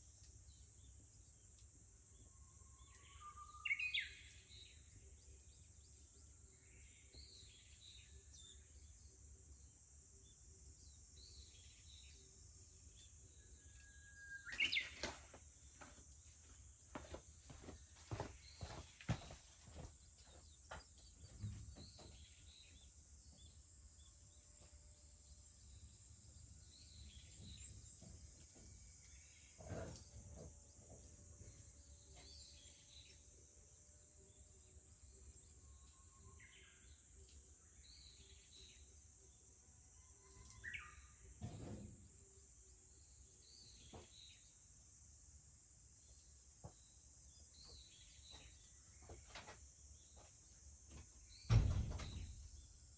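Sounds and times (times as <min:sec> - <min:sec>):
cicadas droning: 0:00.0 - 0:41.4
birds chirping: 0:14.4 - 0:16.0.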